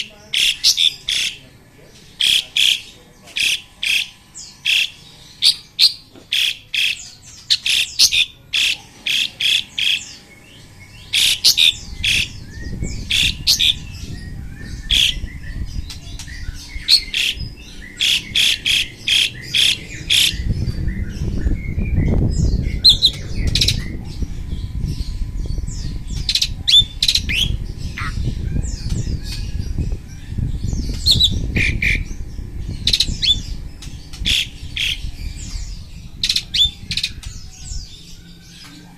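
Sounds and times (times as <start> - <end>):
birds calling harshly: 0.0 - 38.9
low rumble: 10.1 - 38.4.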